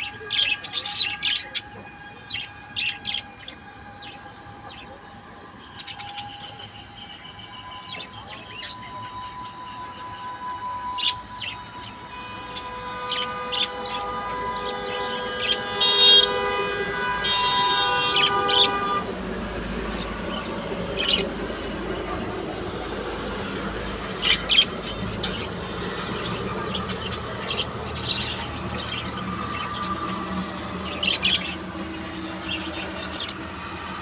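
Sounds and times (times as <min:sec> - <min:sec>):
small birds chirping: 0:00.0 - 0:10.3, 0:24.1 - 0:33.6
horn-like chord: 0:08.8 - 0:19.3.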